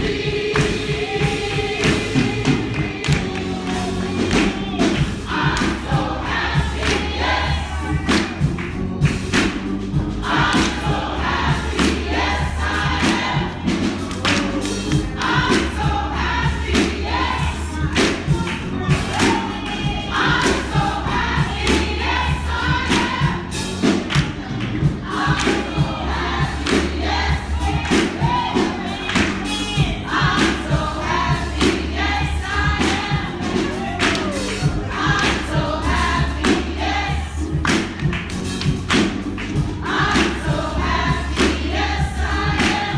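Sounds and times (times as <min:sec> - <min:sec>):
congregation singing in chorus: 0:00.0 - 0:42.9
low bass: 0:00.0 - 0:42.9.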